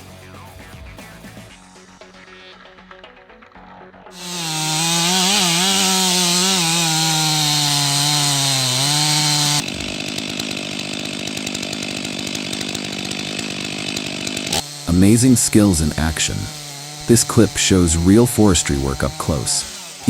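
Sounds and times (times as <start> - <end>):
chainsaw cutting wood: 4.2 - 20.0.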